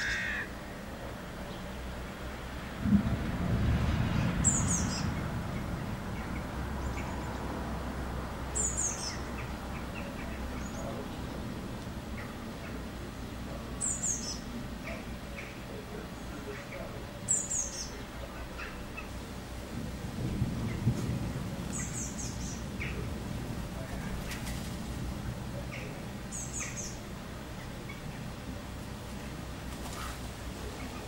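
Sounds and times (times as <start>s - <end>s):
high falling bird call: 0.0s - 0.6s
low rumble: 2.5s - 12.2s.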